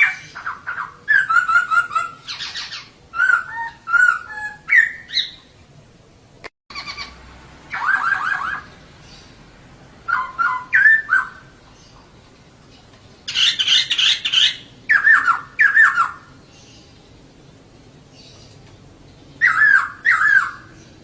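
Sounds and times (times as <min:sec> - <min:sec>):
bird chattering: 0:00.0 - 0:05.4, 0:06.7 - 0:09.4, 0:10.1 - 0:17.0, 0:19.4 - 0:21.0
bird calling falling notes: 0:06.7 - 0:08.8, 0:10.1 - 0:12.0, 0:19.4 - 0:20.8.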